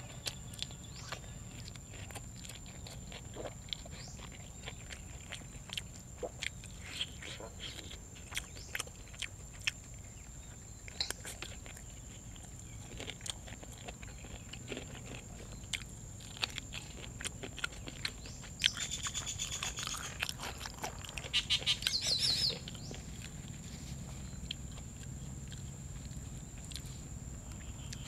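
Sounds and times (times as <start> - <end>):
crunchy chewing: 0.0 - 28.0
high-pitched chirping trill: 21.3 - 22.6.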